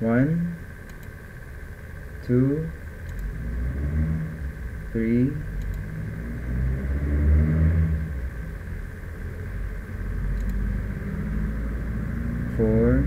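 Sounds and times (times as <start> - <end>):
low engine-like rumble: 0.0 - 13.0
steady background hum: 0.0 - 13.0
faint click: 5.6 - 5.8, 10.4 - 10.6.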